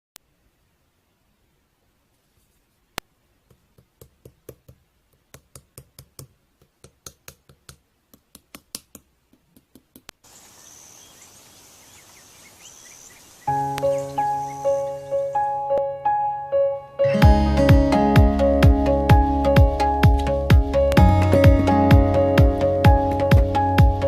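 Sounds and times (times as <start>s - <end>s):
crickets chirping: 10.2s - 15.6s
sharp clicks or taps: 20.9s - 21.1s.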